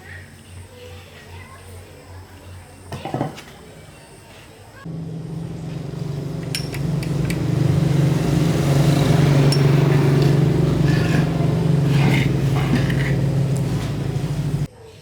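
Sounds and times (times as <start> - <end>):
engine humming: 4.9 - 14.7.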